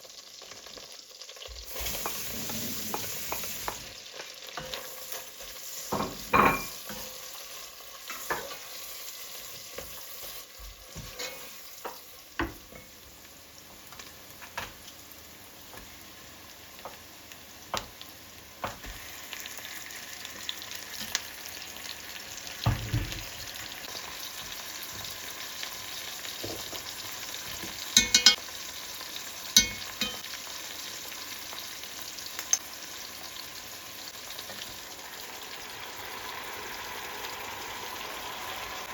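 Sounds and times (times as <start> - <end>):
food sizzling in pan: 0.0 - 38.9
utensils knocking and clicking: 28.0 - 28.4.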